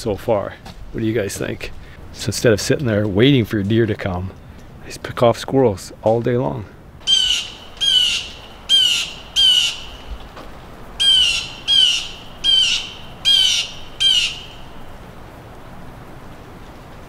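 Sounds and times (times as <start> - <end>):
bird harsh calls: 7.0 - 10.3, 11.0 - 15.0.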